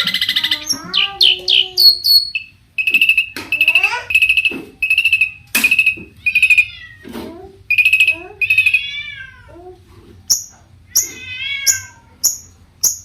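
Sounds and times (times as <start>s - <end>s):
shrike singing: 0.0s - 6.7s, 7.7s - 8.8s.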